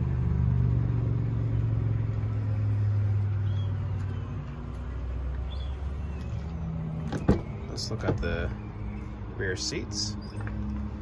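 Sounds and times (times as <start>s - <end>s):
vehicle engine running: 0.0s - 11.0s
faint bird chirps: 3.4s - 4.5s.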